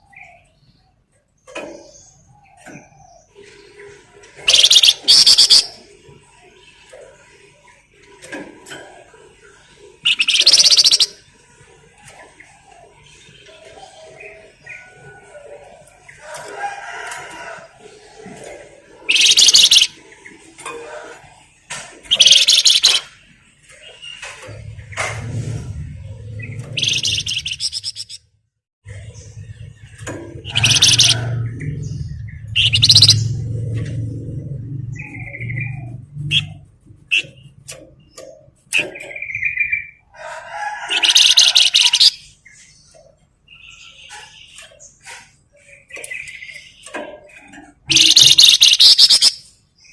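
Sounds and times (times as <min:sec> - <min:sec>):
songbird chirping and trilling: 0:00.0 - 0:28.3, 0:28.9 - 0:49.9
bird harsh rattling calls: 0:04.4 - 0:05.8, 0:10.0 - 0:11.2, 0:19.1 - 0:20.0, 0:22.1 - 0:23.2, 0:26.4 - 0:28.2, 0:30.4 - 0:33.5, 0:40.5 - 0:42.6, 0:43.9 - 0:49.6
songbird soft chattering: 0:10.1 - 0:11.2, 0:19.1 - 0:19.9, 0:22.1 - 0:23.1, 0:47.9 - 0:49.3.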